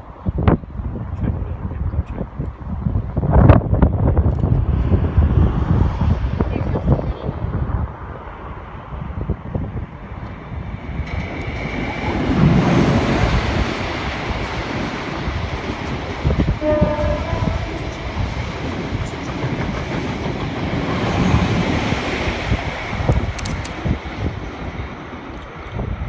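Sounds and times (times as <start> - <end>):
train rumbling past: 0.0 - 26.0
locomotive horn blast: 16.6 - 18.0.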